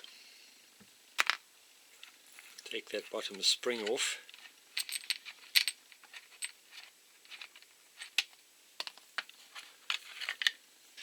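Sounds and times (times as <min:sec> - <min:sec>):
small parts clicking and clinking: 0:02.0 - 0:10.6.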